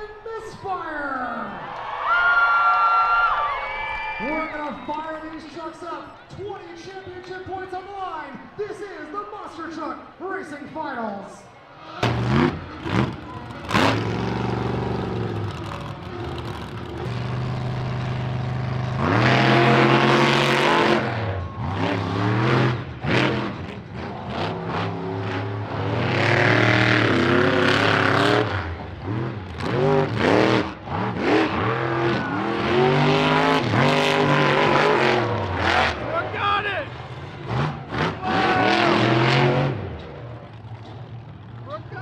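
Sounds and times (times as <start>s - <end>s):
monster truck engines revving: 11.7s - 42.0s.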